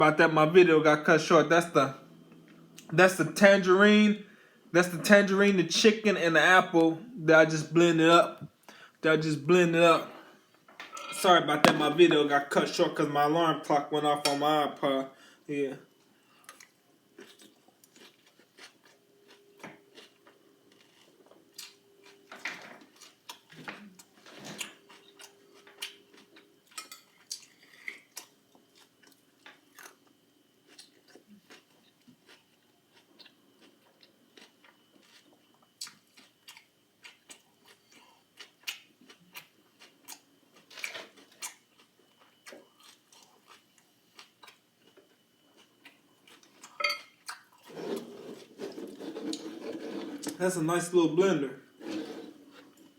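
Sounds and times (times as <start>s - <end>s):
person chewing crunchy food: 16.4s - 50.4s.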